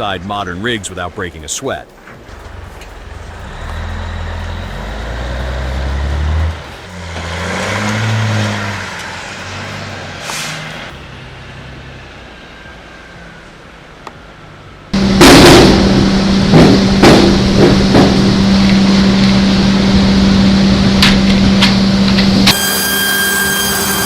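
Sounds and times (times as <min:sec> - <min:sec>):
diesel truck engine pulling under load: 0:02.0 - 0:24.0
short air hiss: 0:10.2 - 0:10.8.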